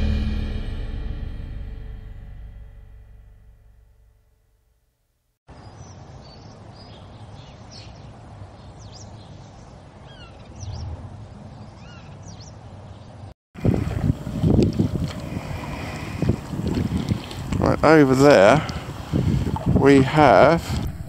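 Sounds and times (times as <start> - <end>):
steady low rumble: 0.0 - 4.4, 10.6 - 11.8, 13.6 - 21.0
birds chirping: 5.5 - 20.9.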